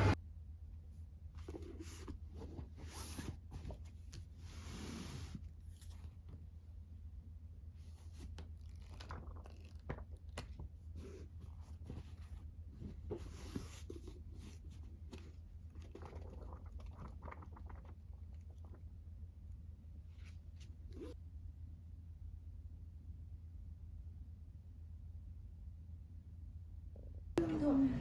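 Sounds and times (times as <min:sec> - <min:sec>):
low steady hum: 0:00.0 - 0:04.5, 0:05.3 - 0:28.0.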